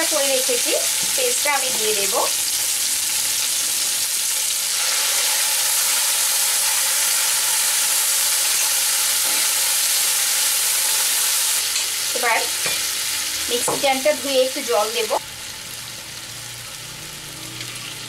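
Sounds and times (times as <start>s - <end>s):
oil sizzling: 0.0s - 18.0s.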